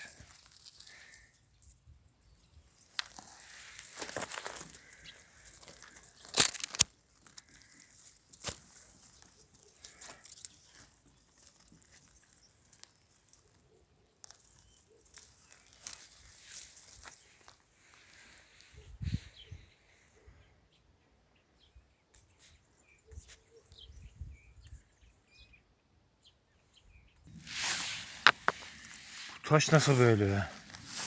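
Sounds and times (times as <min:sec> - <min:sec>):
crunching and rustling: 0:00.0 - 0:18.8, 0:27.3 - 0:31.0
sharp clicks and cracks: 0:02.8 - 0:13.6.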